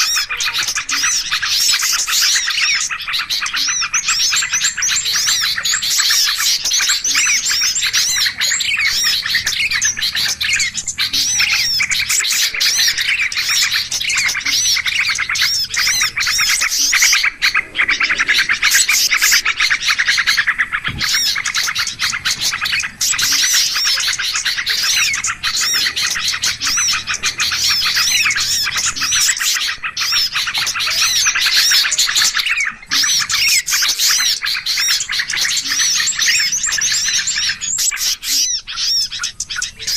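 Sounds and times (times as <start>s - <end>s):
many small birds chirping: 0.0s - 39.9s.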